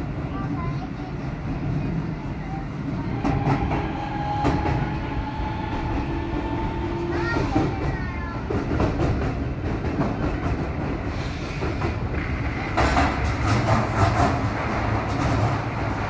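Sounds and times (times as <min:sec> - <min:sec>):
train rumbling on rails: 0:00.0 - 0:16.0
wheels clattering over rail joints: 0:07.2 - 0:16.0.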